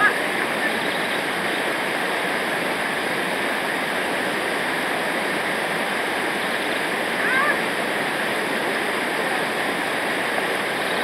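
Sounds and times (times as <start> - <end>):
rushing river water: 0.0 - 11.0.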